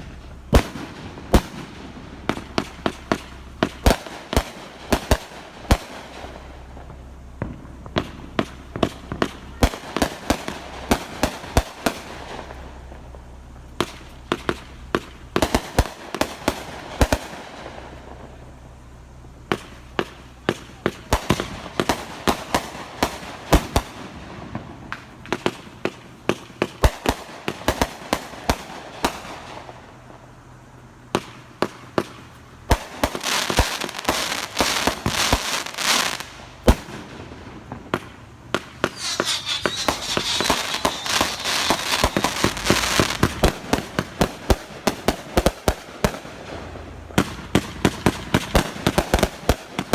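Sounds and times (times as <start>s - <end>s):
fireworks bangs and pops: 0.0s - 49.9s
fireworks crackling: 0.0s - 49.9s.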